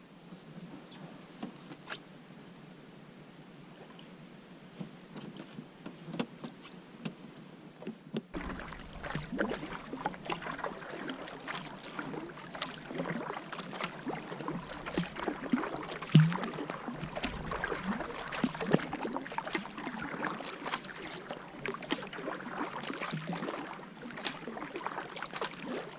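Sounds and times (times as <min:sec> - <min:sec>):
paddle splashing in water: 0:08.3 - 0:25.9.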